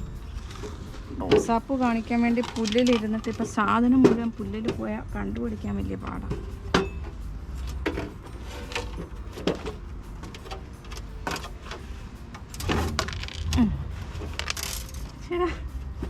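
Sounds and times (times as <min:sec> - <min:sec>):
small parts clicking and clinking: 0:07.6 - 0:15.3.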